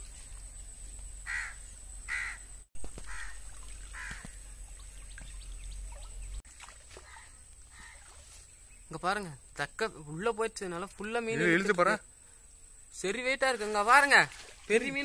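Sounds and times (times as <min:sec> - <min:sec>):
bird calling: 0:01.2 - 0:09.0.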